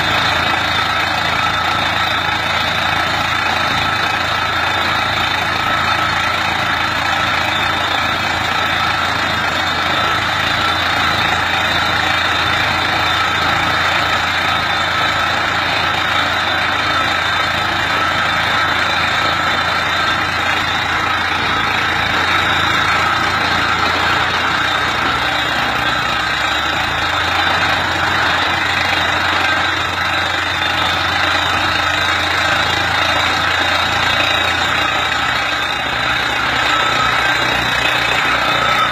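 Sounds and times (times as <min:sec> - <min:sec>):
tractor engine running: 0:00.0 - 0:38.9
steady high whine: 0:16.1 - 0:30.8.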